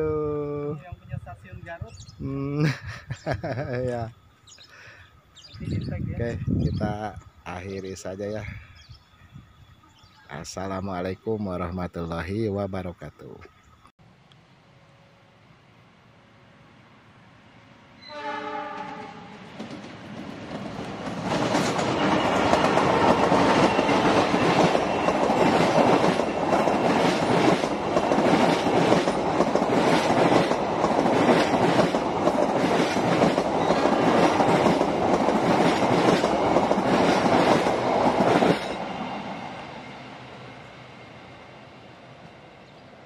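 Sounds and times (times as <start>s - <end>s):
train wheels rumbling on rail: 18.6s - 43.0s.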